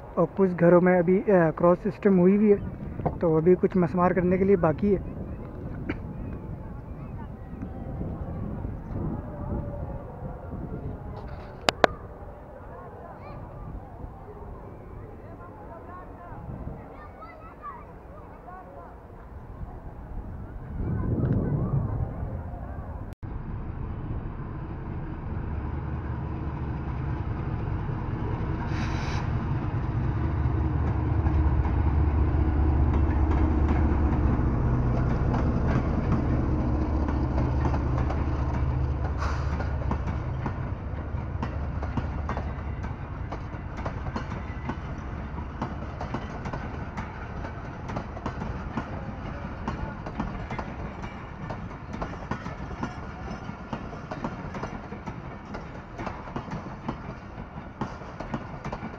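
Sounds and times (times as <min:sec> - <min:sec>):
diesel locomotive engine hum: 0:17.6 - 0:58.9
wheels clicking over rail joints: 0:30.7 - 0:58.9.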